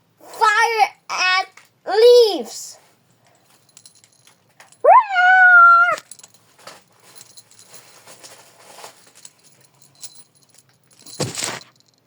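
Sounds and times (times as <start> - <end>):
cards and packaging rustling: 6.0 - 10.2, 11.0 - 11.9.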